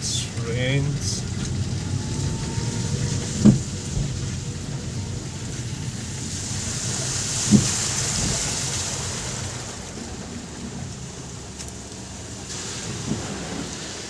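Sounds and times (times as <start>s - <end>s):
car rumbling on wet road: 0.0s - 14.0s
tyres and rain hissing: 0.0s - 14.0s
short thump: 3.3s - 4.2s.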